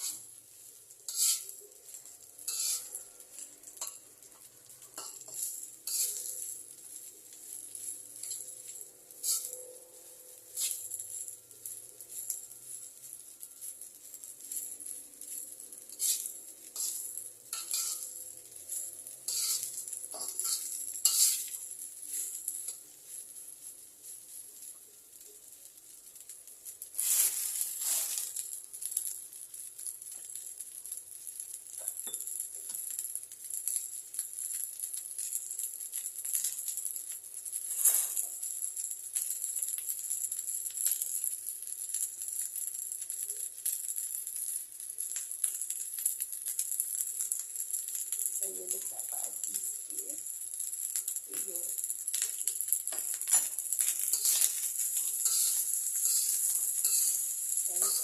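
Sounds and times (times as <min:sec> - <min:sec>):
metal spatula scraping pan: 0:00.0 - 0:00.3, 0:01.1 - 0:01.6, 0:02.4 - 0:04.0, 0:05.0 - 0:06.6, 0:09.1 - 0:09.6, 0:10.5 - 0:11.0, 0:15.2 - 0:22.8, 0:27.0 - 0:28.3, 0:37.7 - 0:38.2, 0:53.3 - 0:58.0
food sizzling in hot oil: 0:00.0 - 0:58.0.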